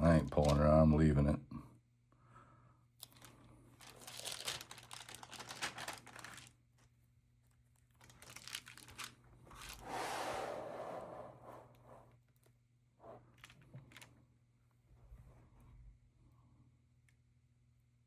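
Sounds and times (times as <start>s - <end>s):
pages rustling: 3.0s - 6.9s, 7.8s - 9.9s
paper crinkling: 3.0s - 6.9s, 7.5s - 9.9s.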